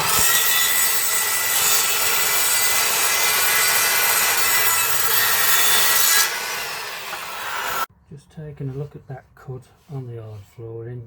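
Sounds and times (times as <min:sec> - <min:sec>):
circular saw cutting flooring: 0:00.0 - 0:07.9.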